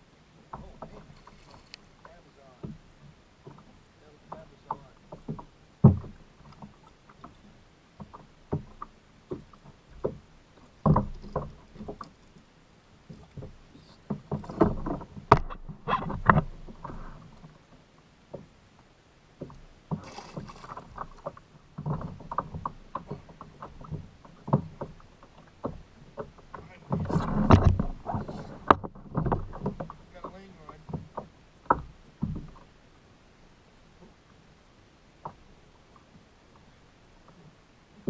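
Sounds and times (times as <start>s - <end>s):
knocks on a kayak: 4.8s - 6.2s, 10.8s - 12.0s, 13.4s - 17.0s, 25.6s - 32.6s
water splashing: 19.4s - 31.0s.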